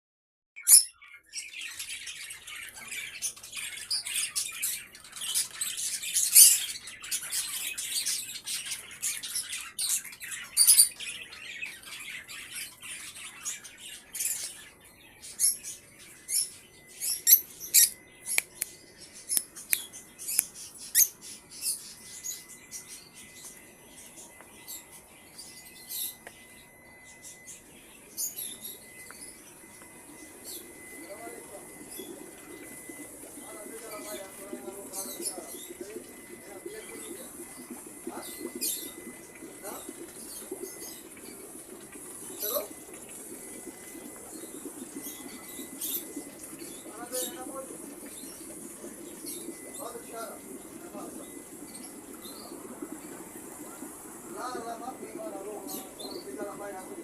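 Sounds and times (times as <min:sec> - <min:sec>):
birds chirping: 0:00.6 - 0:57.0
faint steady high tone: 0:00.9 - 0:57.0.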